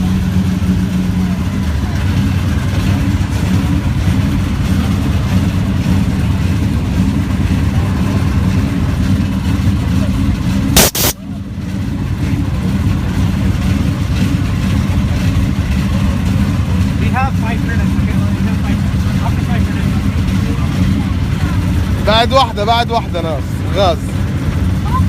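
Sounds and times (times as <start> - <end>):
car engine rumbling: 0.0 - 25.0
loud sharp crack: 10.8 - 11.2.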